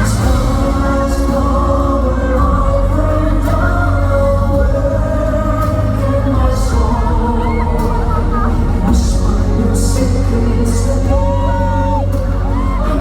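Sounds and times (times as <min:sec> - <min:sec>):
loud backing music: 0:00.0 - 0:13.0
male vocal quartet singing: 0:00.0 - 0:13.0.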